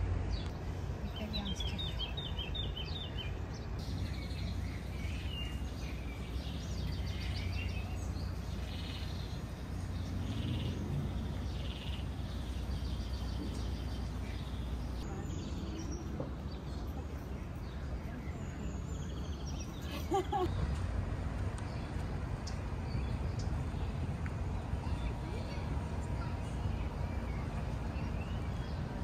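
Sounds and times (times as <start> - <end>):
steady low rumble: 0.0 - 29.0
small birds chirping and singing: 0.2 - 20.8, 21.6 - 29.0.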